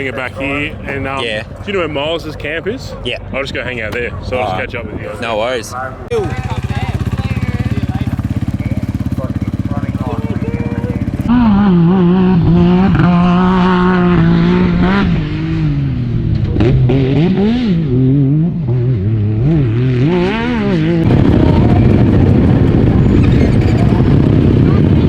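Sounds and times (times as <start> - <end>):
dirt bike engine revving: 6.1 - 25.0.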